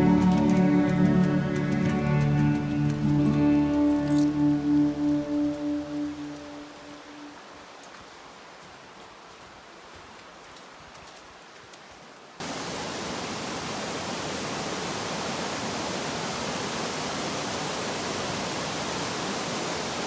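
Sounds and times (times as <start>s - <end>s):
waterfall rushing: 0.0s - 7.7s, 12.4s - 20.0s.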